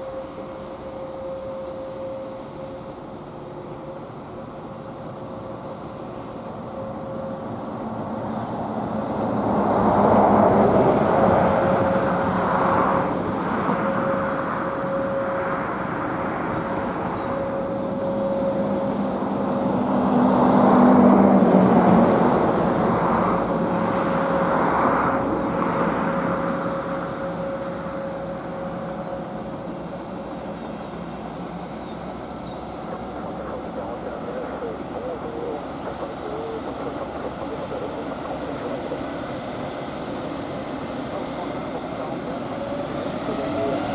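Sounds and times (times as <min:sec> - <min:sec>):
jet engine and rolling noise: 0:00.0 - 0:43.9.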